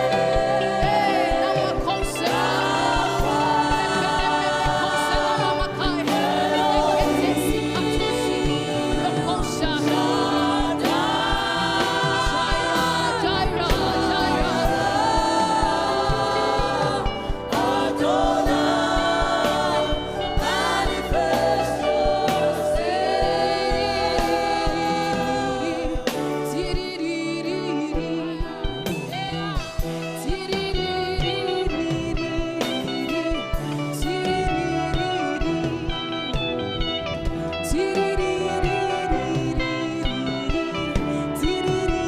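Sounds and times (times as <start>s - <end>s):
band with steady beat: 0.0s - 27.2s
group of singers: 0.0s - 42.0s.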